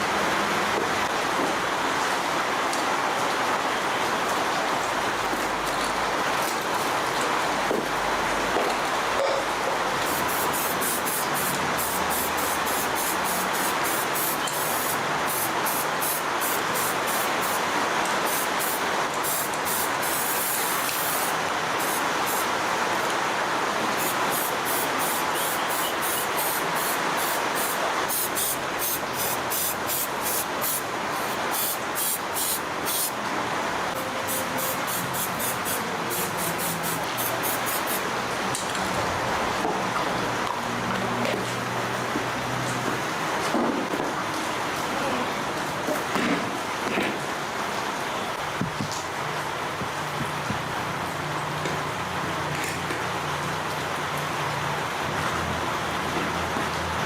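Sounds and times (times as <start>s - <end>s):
hissing spray: 10.0s - 23.1s, 23.9s - 33.2s, 34.0s - 38.1s.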